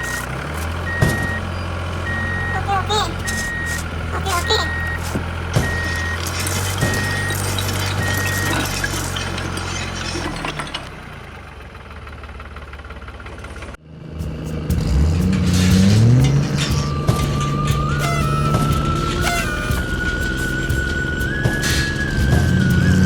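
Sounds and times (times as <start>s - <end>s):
reversing beeps: 0.0s - 9.1s, 16.5s - 23.0s
small motor humming: 16.7s - 23.0s.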